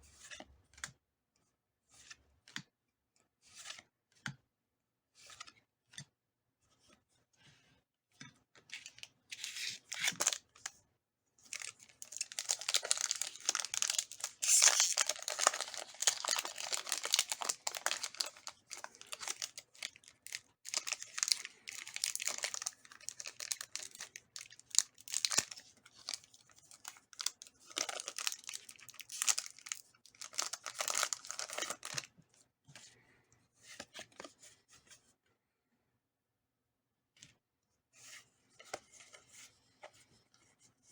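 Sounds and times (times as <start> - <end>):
foil wrapper tearing and crinkling: 9.4 - 10.4, 11.5 - 32.1.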